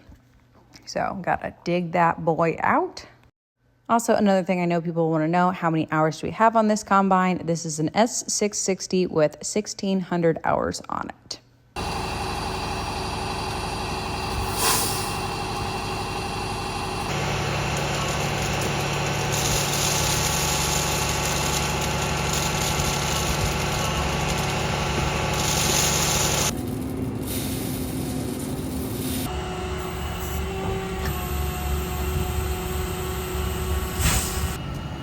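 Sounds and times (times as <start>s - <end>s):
diesel farm machinery running: 11.8s - 35.0s.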